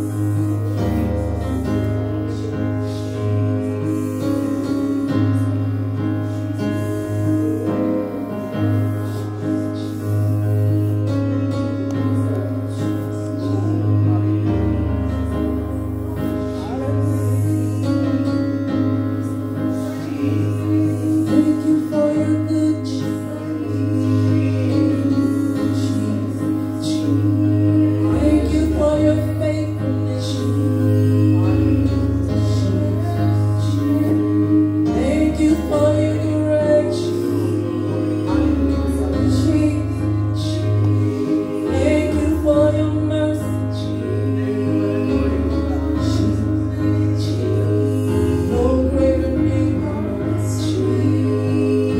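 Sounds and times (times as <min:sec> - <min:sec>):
voices singing worship song: 0:00.0 - 0:51.9.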